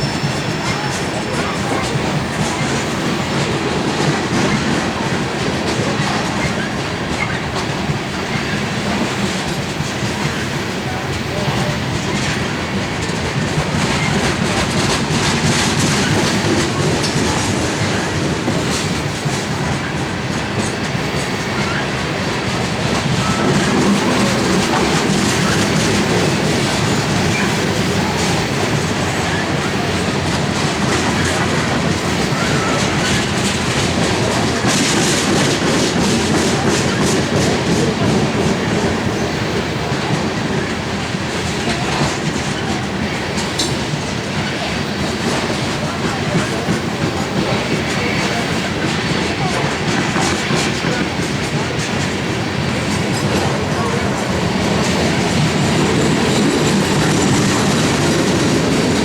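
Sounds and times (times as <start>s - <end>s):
train cars rolling past: 0.0s - 59.0s
wheels clacking over rail joints: 0.0s - 59.0s.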